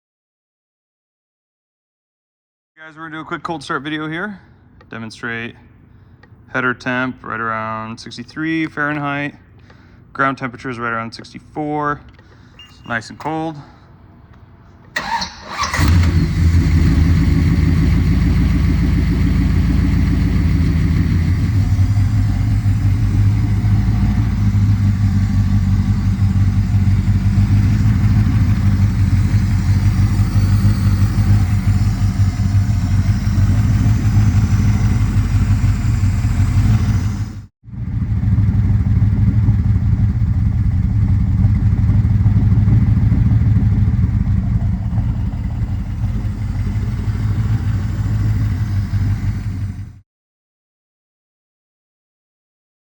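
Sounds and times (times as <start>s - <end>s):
engine cranking: 14.9s - 37.5s, 41.0s - 50.0s
car engine idling: 15.0s - 50.0s.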